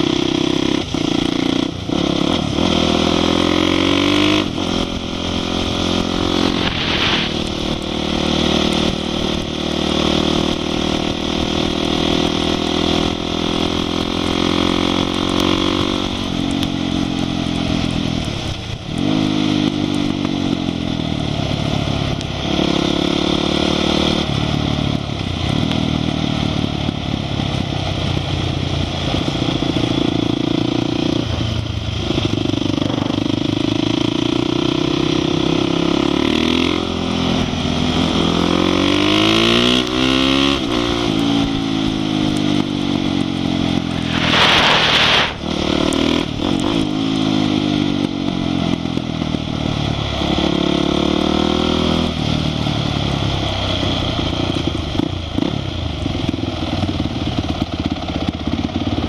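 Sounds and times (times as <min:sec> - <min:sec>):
motorcycle engine accelerating: 0:00.0 - 0:59.0
wind rushing: 0:06.3 - 0:07.7, 0:43.8 - 0:46.3.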